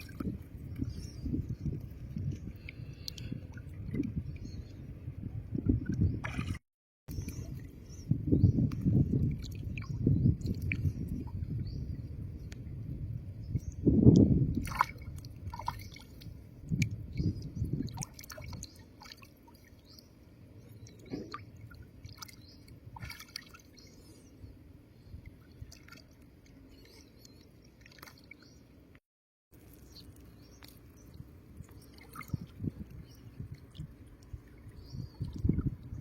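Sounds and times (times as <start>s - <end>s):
water dripping and splashing: 0.0s - 4.3s, 8.6s - 11.4s, 14.0s - 20.1s, 20.8s - 23.8s, 25.2s - 28.5s, 29.5s - 36.0s.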